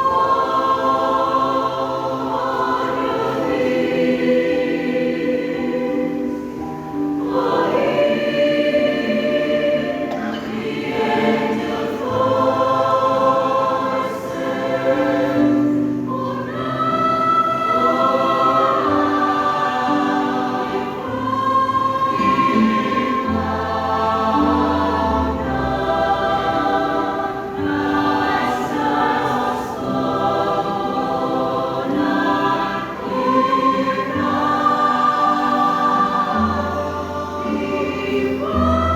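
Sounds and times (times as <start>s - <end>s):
choir singing: 0.0s - 38.9s.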